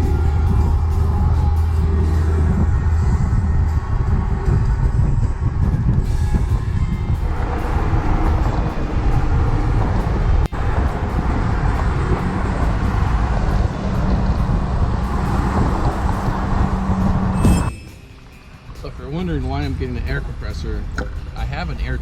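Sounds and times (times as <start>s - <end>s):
car driving on road: 0.0s - 22.0s
steady low hum: 0.0s - 22.0s.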